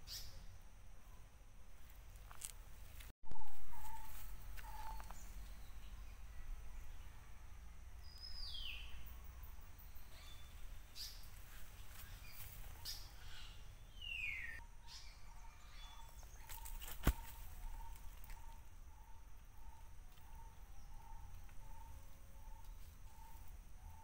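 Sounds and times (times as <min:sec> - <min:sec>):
birds whistling and chirping: 0:03.3 - 0:06.2, 0:08.1 - 0:09.1, 0:12.0 - 0:24.0.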